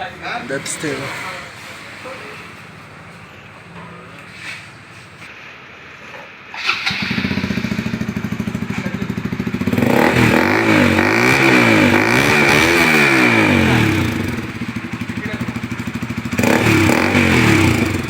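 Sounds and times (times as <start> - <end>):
motorcycle engine idling and revving: 6.7 - 18.0.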